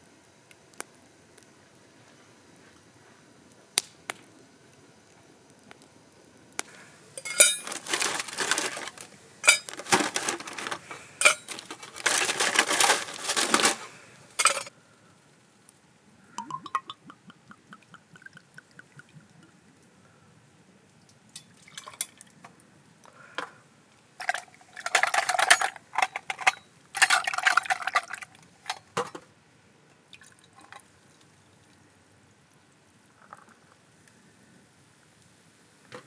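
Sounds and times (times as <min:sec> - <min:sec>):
liquid pouring into container: 0:16.4 - 0:19.5.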